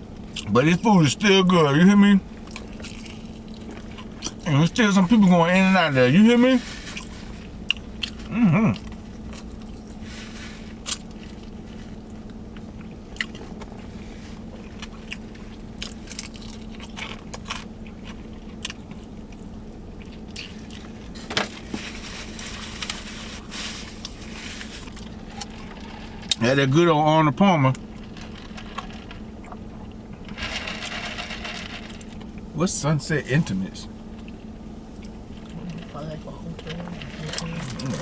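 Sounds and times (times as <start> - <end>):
steady low hum: 0.0 - 38.0
chewing crunchy food: 2.4 - 4.5, 6.9 - 26.4, 27.8 - 32.5, 34.1 - 36.0, 36.6 - 38.0.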